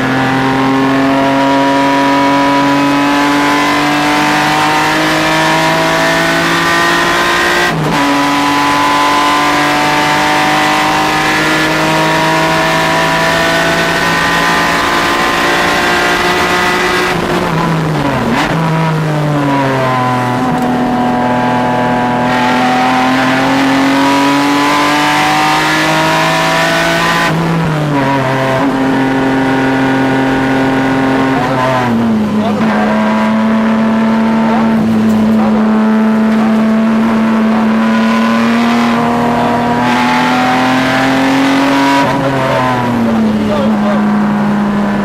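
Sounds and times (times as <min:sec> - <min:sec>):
car engine accelerating hard: 0:00.0 - 0:45.0.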